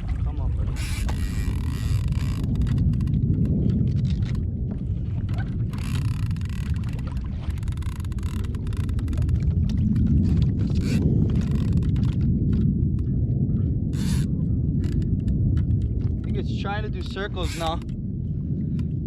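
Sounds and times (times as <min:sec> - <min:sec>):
wind rumble on microphone: 0:00.0 - 0:19.0
water hissing and washing: 0:17.0 - 0:17.8.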